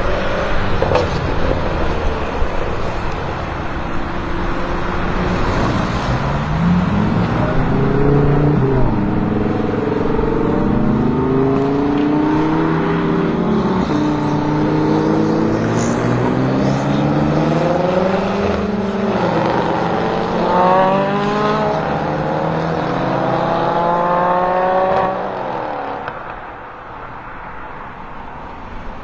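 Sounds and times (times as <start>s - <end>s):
car engine accelerating hard: 0.0s - 26.3s
wind and tyre noise: 0.0s - 29.0s.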